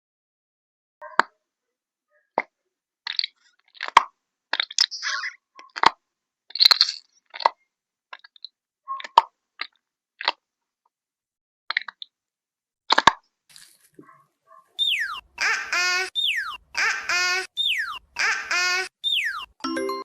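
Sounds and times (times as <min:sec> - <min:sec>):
crunchy craft material crunching: 0:12.9 - 0:14.0.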